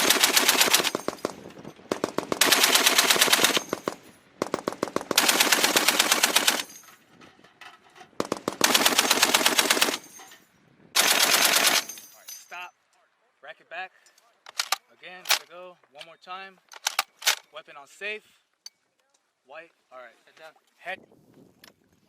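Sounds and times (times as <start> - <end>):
heavy machine gun bursts: 0.0 - 6.7, 8.2 - 10.1, 11.0 - 12.0
gunfire echoing: 0.8 - 6.7, 8.2 - 9.5.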